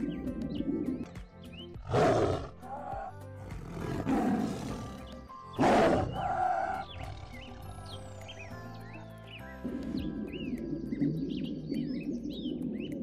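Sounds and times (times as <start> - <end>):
background music: 0.0 - 13.0
tiger calling: 1.8 - 7.9.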